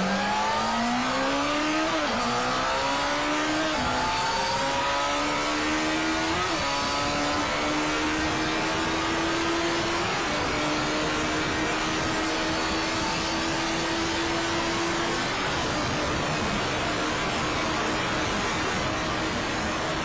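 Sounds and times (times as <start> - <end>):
motorcycle engine accelerating: 0.0 - 20.0
wind rush on microphone: 6.1 - 20.0.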